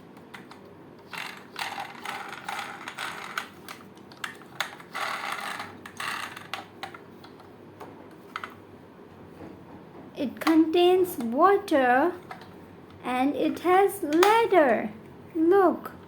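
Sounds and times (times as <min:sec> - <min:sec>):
plastic toy rattling and clicking: 0:00.3 - 0:07.0.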